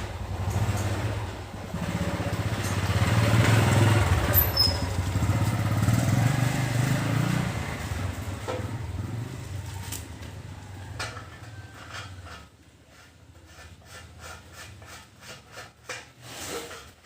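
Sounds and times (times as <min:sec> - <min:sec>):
two-stroke motorcycle engine: 0:00.0 - 0:12.6.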